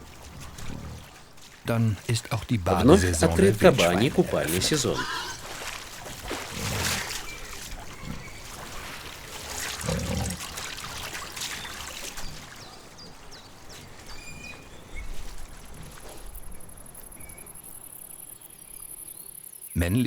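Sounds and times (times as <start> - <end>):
boars splashing in water: 0.0 - 16.6
low boar grunts: 2.7 - 5.5, 9.8 - 10.4.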